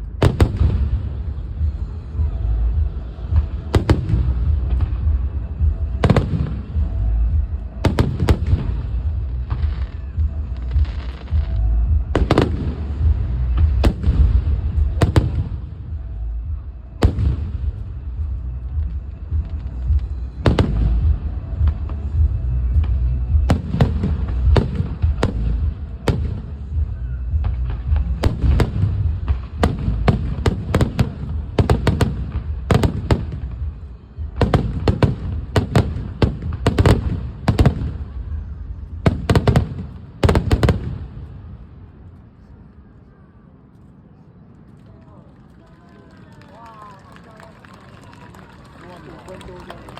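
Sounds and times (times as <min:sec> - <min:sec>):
continuous low rumble: 0:00.0 - 0:49.9.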